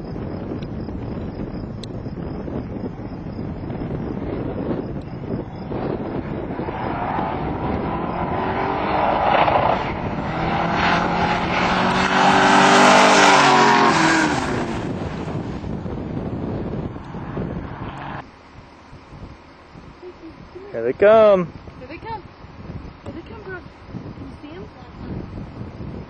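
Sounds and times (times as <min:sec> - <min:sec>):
wind buffeting microphone: 0:00.0 - 0:26.0
race car engine passing: 0:06.4 - 0:15.6.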